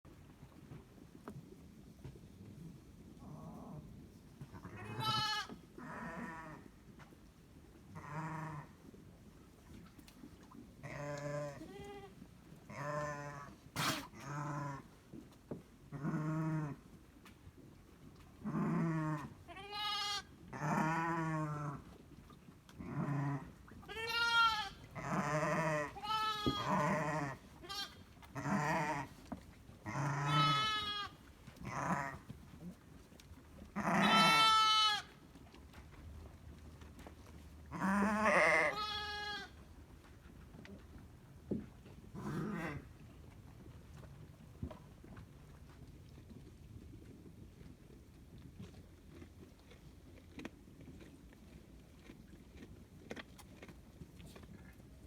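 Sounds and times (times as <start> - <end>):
sheep and lambs bleating: 4.7 - 6.4, 19.5 - 20.2, 23.9 - 29.1, 29.9 - 32.1, 33.8 - 35.1, 37.8 - 39.6.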